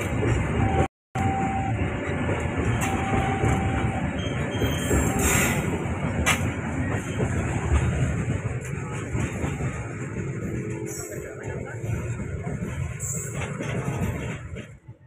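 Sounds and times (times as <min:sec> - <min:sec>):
train wheels rumbling on rails: 0:00.0 - 0:15.0
wheels squealing on track: 0:02.7 - 0:05.8.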